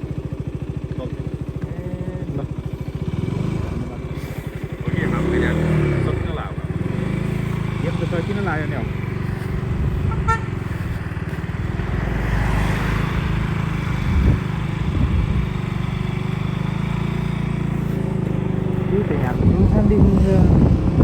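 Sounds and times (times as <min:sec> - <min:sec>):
motorcycle engine running: 0:00.0 - 0:21.0
short horn toot: 0:10.0 - 0:10.8.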